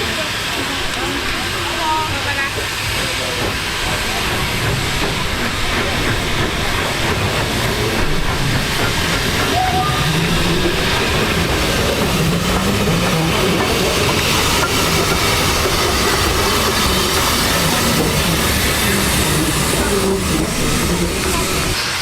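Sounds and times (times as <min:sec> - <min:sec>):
steam train running: 0:00.0 - 0:22.0.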